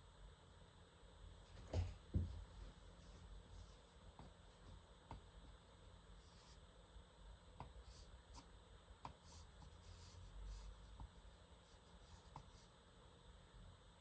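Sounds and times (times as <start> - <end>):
pen scratching on paper: 7.6 - 8.5, 9.1 - 12.8.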